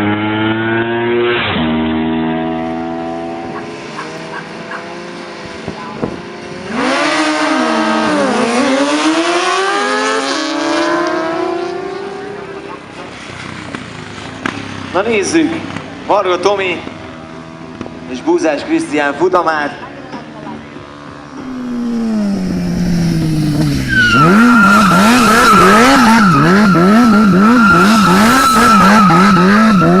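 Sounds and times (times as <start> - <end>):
race car engine revving: 0.0 - 12.6, 21.2 - 30.0
racing engine passing at speed: 21.3 - 30.0
high-pitched tyre squeal: 21.4 - 30.0.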